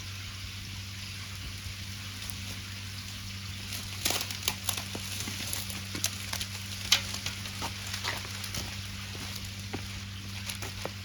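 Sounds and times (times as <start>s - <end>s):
wood fire crackling: 1.2s - 11.0s.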